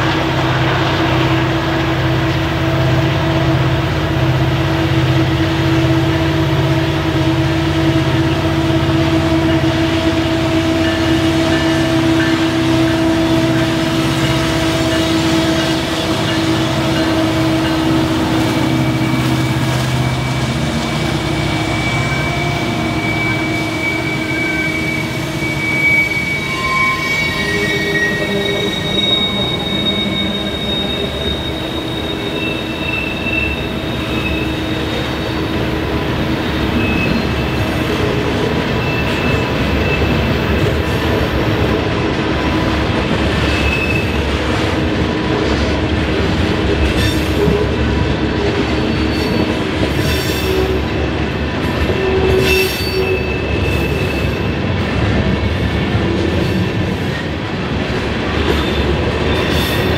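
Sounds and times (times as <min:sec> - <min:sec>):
railroad cars rolling on rails: 0:00.0 - 0:59.9
wheel squeal: 0:18.3 - 0:35.4, 0:36.5 - 0:37.6, 0:43.5 - 0:44.3, 0:52.0 - 0:54.5.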